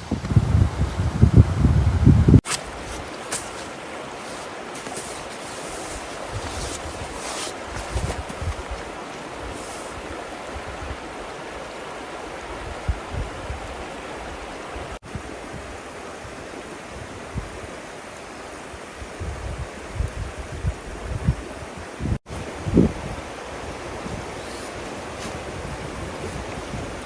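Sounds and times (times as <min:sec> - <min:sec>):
wind buffeting microphone: 0:00.0 - 0:04.4, 0:05.5 - 0:11.2, 0:19.0 - 0:27.0
river water flowing: 0:02.4 - 0:19.2, 0:22.3 - 0:27.0.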